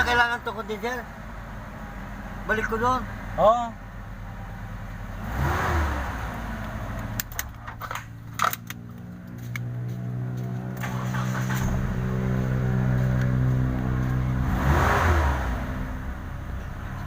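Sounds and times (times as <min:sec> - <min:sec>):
van engine running: 0:00.0 - 0:17.0
sharp clicks and knocks: 0:07.0 - 0:10.9.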